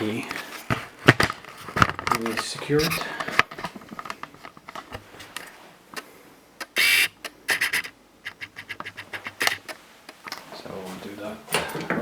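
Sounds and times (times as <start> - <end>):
tools clicking and clattering: 0.2 - 10.5
harsh squeaky scrape: 2.2 - 3.2.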